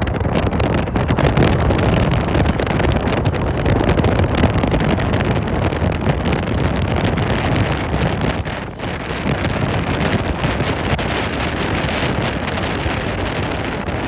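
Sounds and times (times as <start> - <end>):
jet engines rumbling at takeoff: 0.0 - 14.0
wind buffeting microphone: 0.0 - 14.0.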